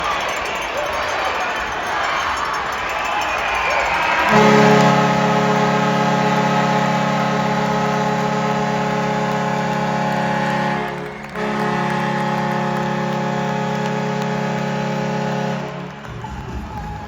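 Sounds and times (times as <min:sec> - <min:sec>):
arena horn blaring: 0:04.3 - 0:16.5.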